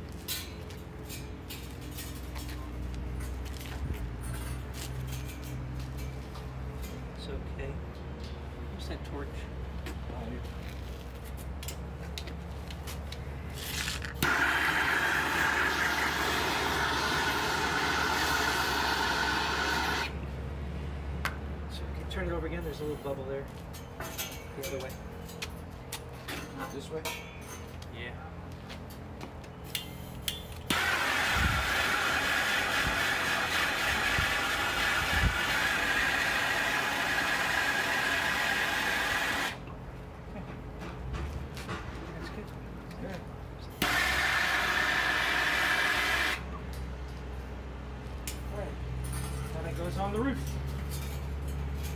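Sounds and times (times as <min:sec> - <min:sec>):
gas torch hissing: 0:14.2 - 0:20.2, 0:30.7 - 0:39.6, 0:43.8 - 0:46.4.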